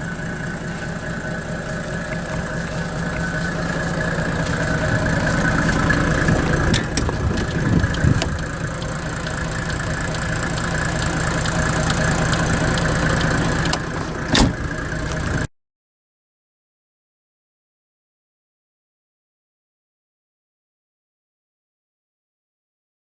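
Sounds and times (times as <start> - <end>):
diesel engine running: 0.0 - 15.5.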